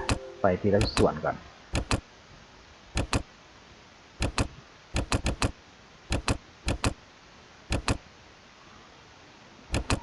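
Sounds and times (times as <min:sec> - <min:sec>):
computer mouse clicking: 0:00.8 - 0:01.1, 0:01.7 - 0:02.0, 0:02.9 - 0:03.3, 0:04.2 - 0:07.0, 0:07.7 - 0:08.0, 0:09.7 - 0:10.0.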